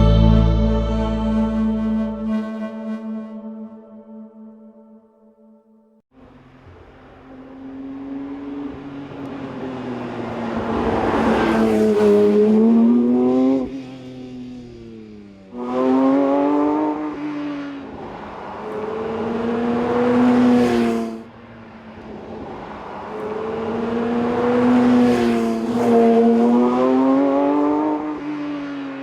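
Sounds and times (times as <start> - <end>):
car engine accelerating hard: 6.2 - 21.2, 22.0 - 29.0.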